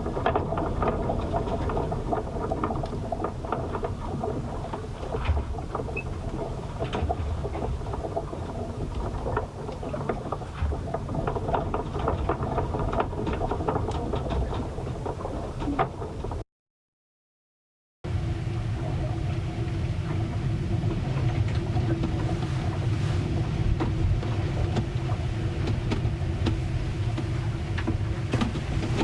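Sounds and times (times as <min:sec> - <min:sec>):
small ticks and knocks: 0:00.0 - 0:16.4, 0:23.8 - 0:29.0
steady low rumble: 0:00.0 - 0:16.4, 0:18.1 - 0:29.0.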